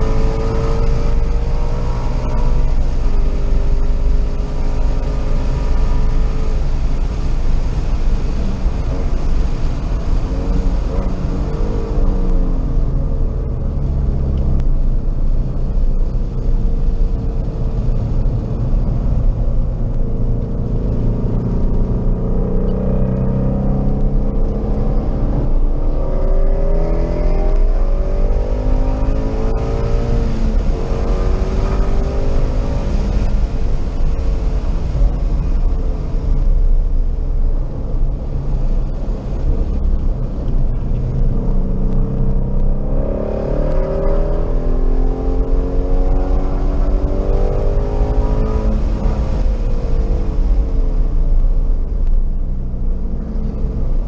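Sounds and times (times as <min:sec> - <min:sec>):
car engine accelerating hard: 0:00.0 - 0:54.0.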